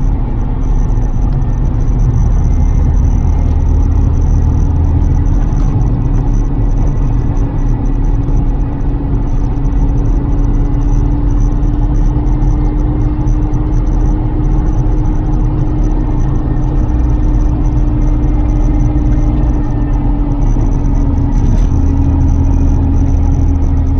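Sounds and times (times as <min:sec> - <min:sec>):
car engine pulling steadily: 0:00.0 - 0:23.9
road and drivetrain rumble: 0:00.0 - 0:23.9.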